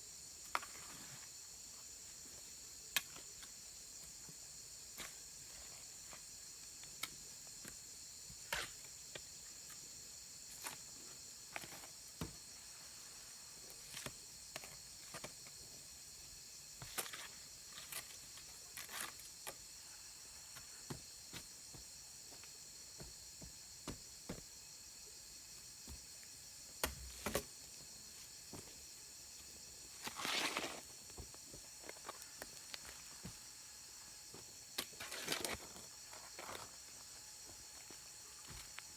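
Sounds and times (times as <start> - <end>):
high-pitched insect chorus: 0.0 - 38.9
rustling scrape: 30.0 - 30.9.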